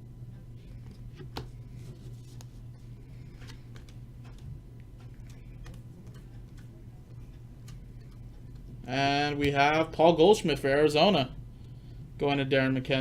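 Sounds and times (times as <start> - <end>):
steady low hum: 0.0 - 13.0
trading cards clicking and snapping: 3.3 - 8.7.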